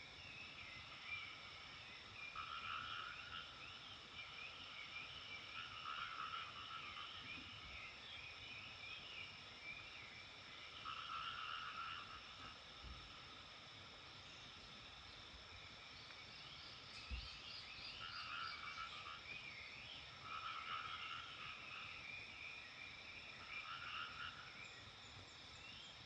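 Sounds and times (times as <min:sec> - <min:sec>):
frogs calling in chorus: 0:02.2 - 0:08.0, 0:10.4 - 0:13.2, 0:17.4 - 0:24.9.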